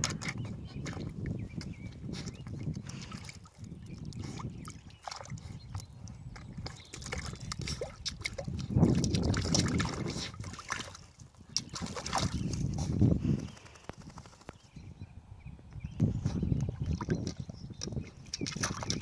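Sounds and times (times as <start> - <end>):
water sloshing and splashing: 0.0 - 12.9, 16.7 - 19.0
water dripping: 2.4 - 12.6.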